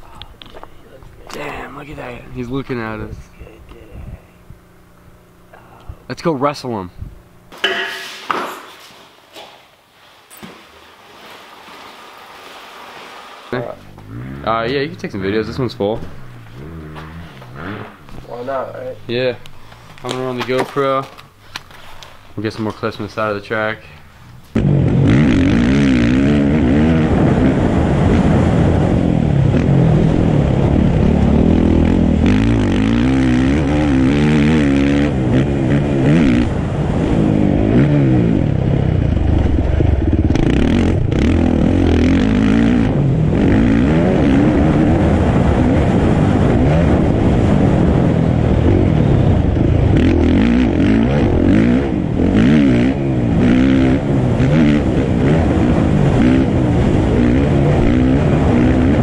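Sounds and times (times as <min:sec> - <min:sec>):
dirt bike engine revving: 0:12.8 - 0:20.5, 0:24.5 - 0:59.0.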